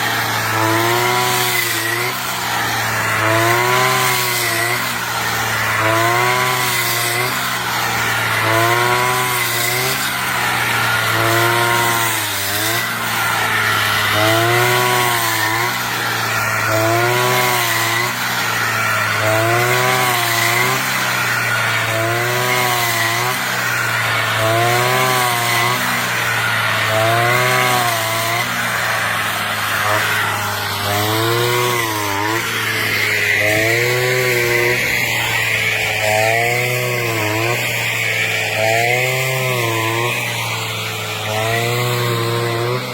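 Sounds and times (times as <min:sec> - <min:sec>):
brush cutter engine running: 0:00.0 - 0:42.9.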